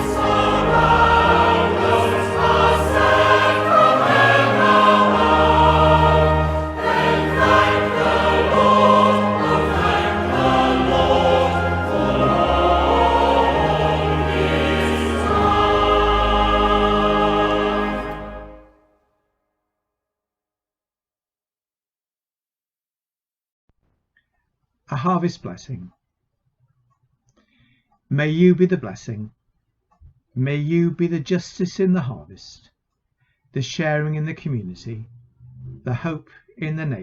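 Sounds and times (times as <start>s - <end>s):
choir singing a hymn: 0.0s - 18.8s.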